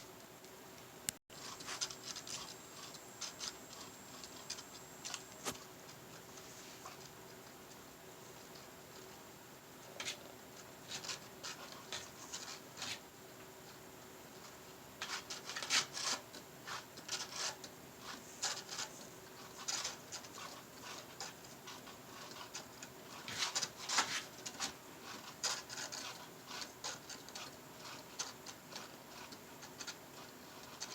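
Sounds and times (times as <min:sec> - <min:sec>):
cat scratching and rubbing: 0:01.3 - 0:07.6, 0:09.8 - 0:13.1, 0:14.3 - 0:30.9.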